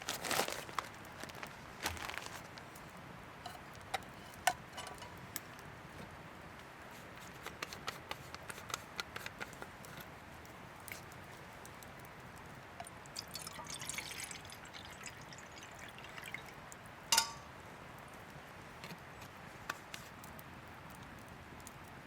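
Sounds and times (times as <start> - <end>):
liquid dripping and trickling: 10.8 - 17.5.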